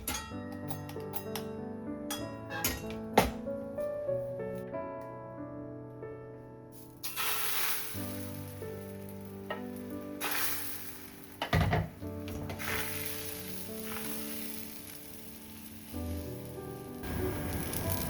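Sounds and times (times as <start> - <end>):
soft background music: 0.0 - 18.0
food sizzling in a pan: 7.0 - 18.0.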